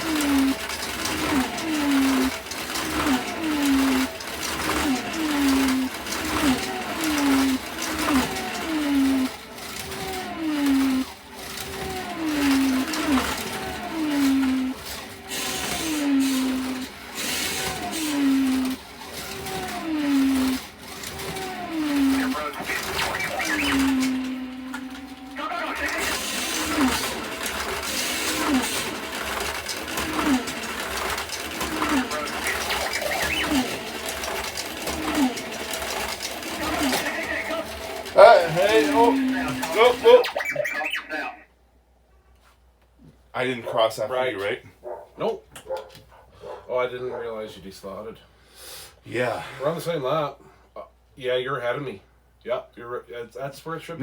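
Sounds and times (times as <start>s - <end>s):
slot car motors whining: 0.0s - 42.0s.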